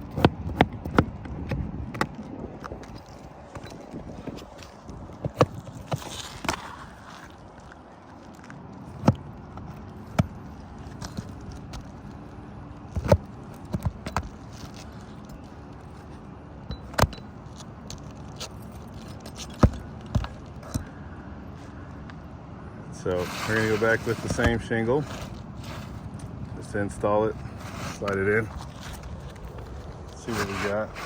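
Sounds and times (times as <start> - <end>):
light scraping: 2.6 - 8.6, 23.0 - 31.0
roofing tools knocking and tapping: 19.0 - 20.9.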